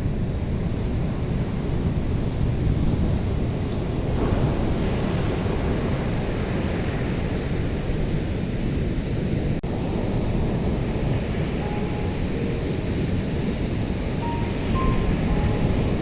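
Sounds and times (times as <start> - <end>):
ocean waves breaking: 9.7 - 16.0.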